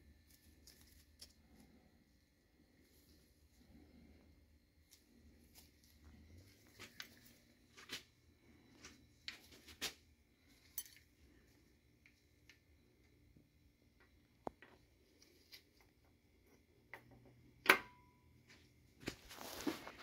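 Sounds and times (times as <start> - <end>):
metal parts clicking and clinking: 10.6 - 11.1.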